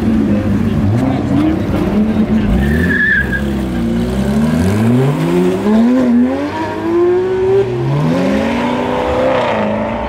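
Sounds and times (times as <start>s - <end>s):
car engine revving hard: 3.5s - 10.0s.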